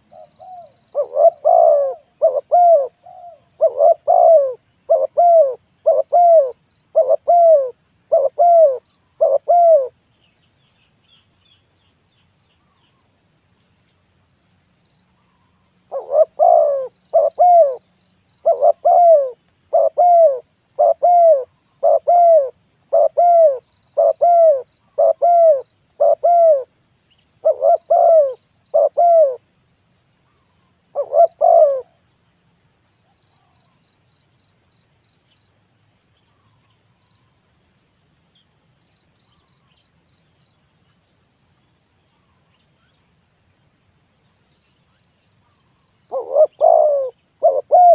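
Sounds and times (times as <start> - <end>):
dove cooing: 0.0 - 10.0, 15.4 - 26.8, 27.4 - 29.5, 30.3 - 32.0, 45.5 - 47.9
small bird chirping: 0.0 - 29.4, 38.3 - 47.9.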